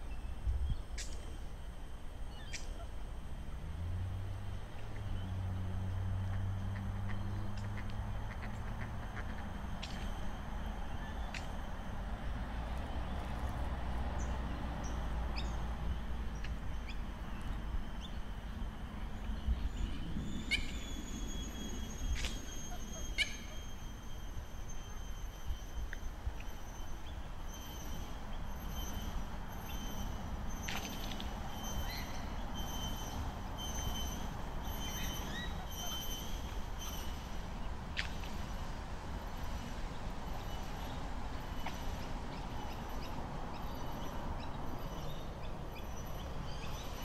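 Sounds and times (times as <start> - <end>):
steady low rumble: 0.0 - 21.1
thin high whine: 16.7 - 37.7.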